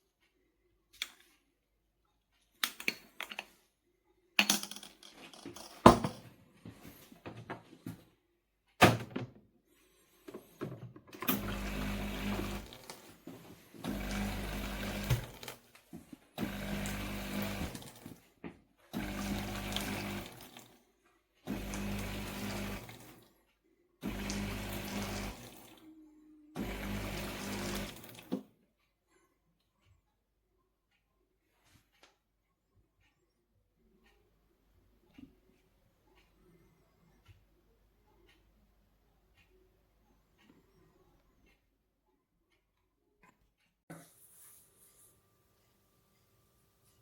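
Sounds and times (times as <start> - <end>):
coffee machine pump buzzing: 11.2 - 13.0, 13.8 - 15.6, 16.4 - 18.2, 19.0 - 20.6, 21.5 - 23.1, 24.0 - 25.8, 26.6 - 28.4.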